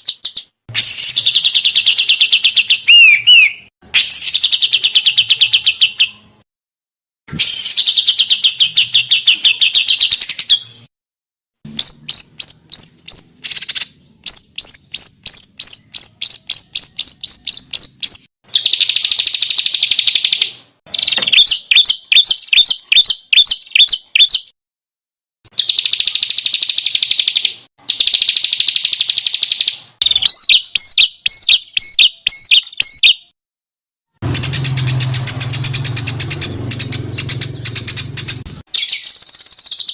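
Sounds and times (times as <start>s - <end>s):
songbird trilling: 0.0s - 6.2s, 25.6s - 33.3s, 34.2s - 39.9s.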